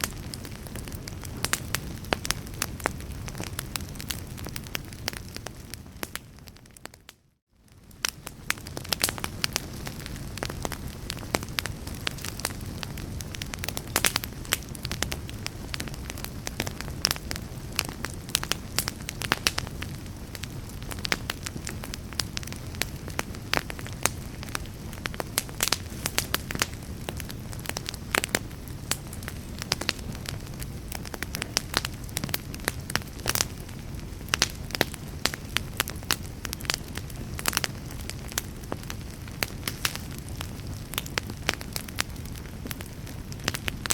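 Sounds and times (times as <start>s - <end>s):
fireplace fire crackling and popping: 0.0s - 43.9s.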